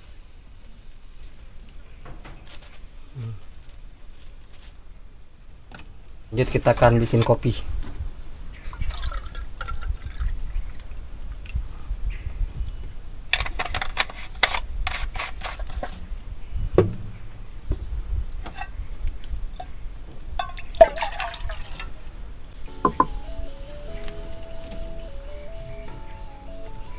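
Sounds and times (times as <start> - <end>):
water pouring into a pot: 8.8 - 10.4, 20.4 - 21.9.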